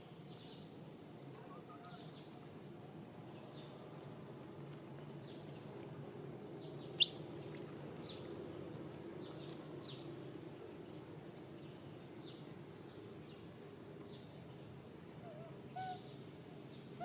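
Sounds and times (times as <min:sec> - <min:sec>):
small birds chirping: 0:06.6 - 0:08.4.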